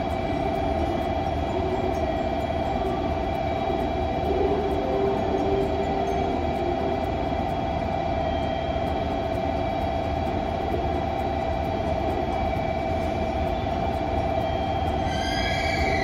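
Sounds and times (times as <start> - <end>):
constant whine: 0.0 - 16.0
electric train rumbling: 0.0 - 16.0.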